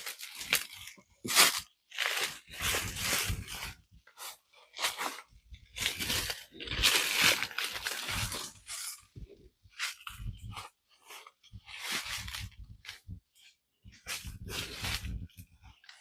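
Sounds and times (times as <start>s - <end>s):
footsteps crunching dry leaves: 0.0s - 5.2s, 5.8s - 9.0s.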